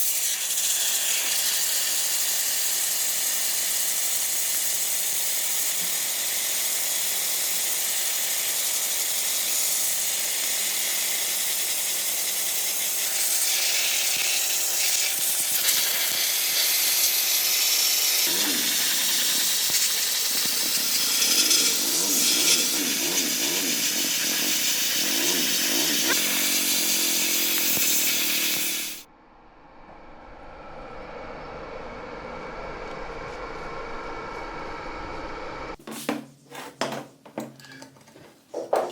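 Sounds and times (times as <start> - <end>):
loud hissing noise: 13.0 - 29.1.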